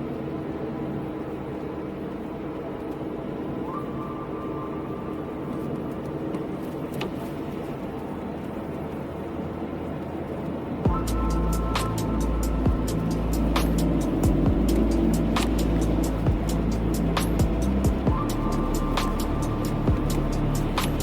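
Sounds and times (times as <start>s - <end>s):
car engine hum: 0.0s - 21.0s
tyres hissing on wet road: 10.9s - 21.0s.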